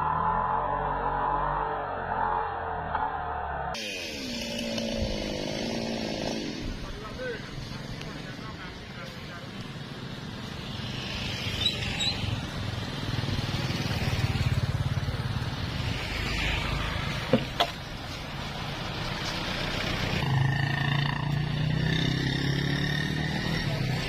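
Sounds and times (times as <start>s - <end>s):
chainsaw running: 3.8s - 7.2s.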